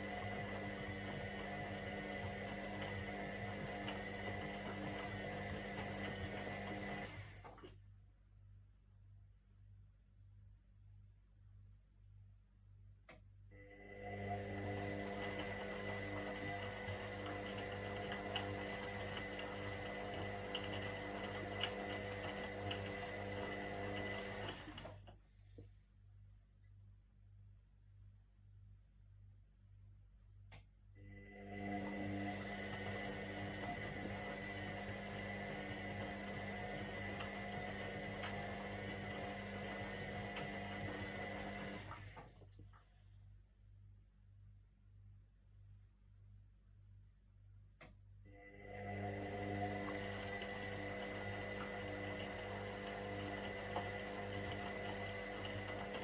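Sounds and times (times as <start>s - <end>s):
washing machine motor hum: 0.0s - 7.8s, 13.5s - 25.3s, 31.0s - 42.8s, 48.2s - 56.0s.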